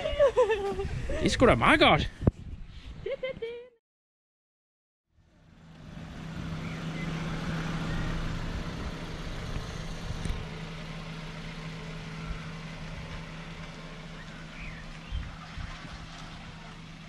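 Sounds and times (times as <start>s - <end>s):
car engine idling: 5.2s - 17.0s.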